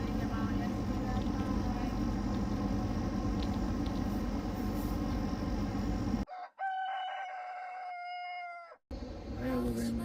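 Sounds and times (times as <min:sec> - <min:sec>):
low hum and rushing noise: 0:00.0 - 0:06.3
rooster crowing: 0:06.3 - 0:08.8.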